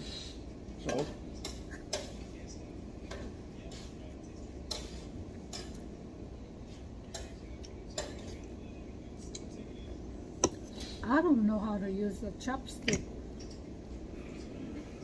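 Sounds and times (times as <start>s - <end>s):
low background hum: 0.0s - 15.0s
utensils clinking on plates: 4.7s - 5.9s, 7.0s - 8.5s.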